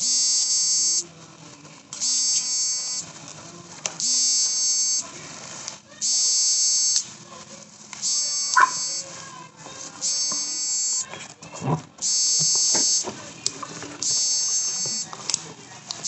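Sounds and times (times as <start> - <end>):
buzzing electronic tone: 0.0 - 1.0, 2.0 - 3.0, 4.0 - 5.1, 6.0 - 7.0, 8.0 - 9.1, 10.0 - 11.0, 12.0 - 13.1, 14.0 - 15.1.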